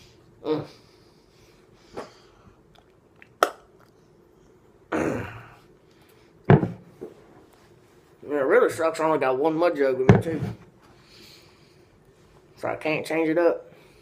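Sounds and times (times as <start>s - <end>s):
man's breath and throat noises: 0.0s - 3.0s.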